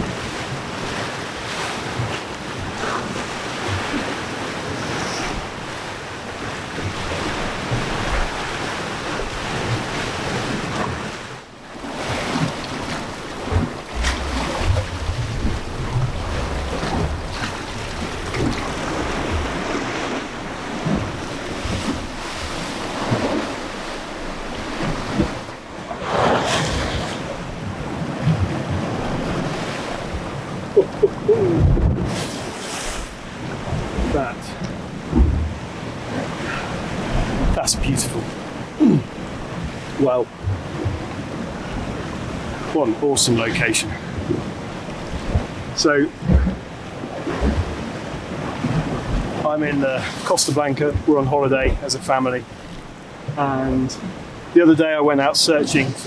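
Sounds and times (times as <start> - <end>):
sea surf washing against rocks: 0.0 - 56.0
wind buffeting microphone: 11.9 - 42.8, 43.5 - 49.4.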